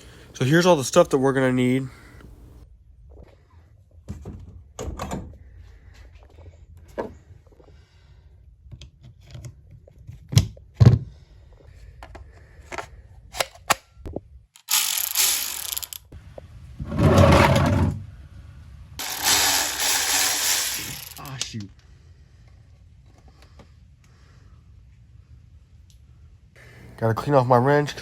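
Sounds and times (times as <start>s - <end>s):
ratchet wrench clicking: 14.6s - 16.1s, 19.0s - 21.4s.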